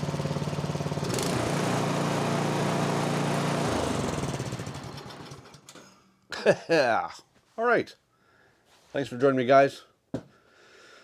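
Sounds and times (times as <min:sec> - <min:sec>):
snowblower engine running: 0:00.0 - 0:05.8.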